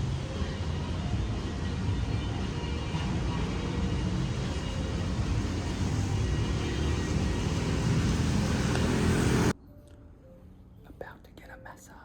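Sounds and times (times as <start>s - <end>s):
low outdoor background rumble: 0.0s - 9.6s.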